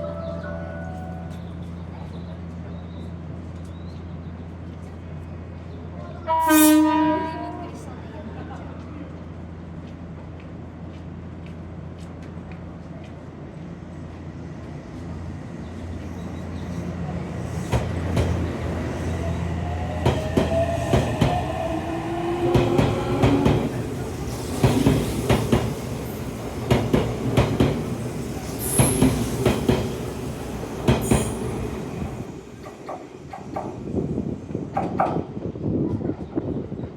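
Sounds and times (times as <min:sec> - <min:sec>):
train wheels clattering: 0:22.2 - 0:31.9.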